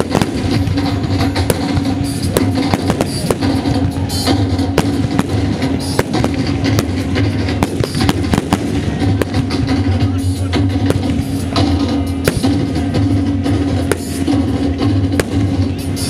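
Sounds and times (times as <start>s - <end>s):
firework bangs and crackles: 0.0s - 16.0s
loud music with heavy bass: 0.0s - 16.0s.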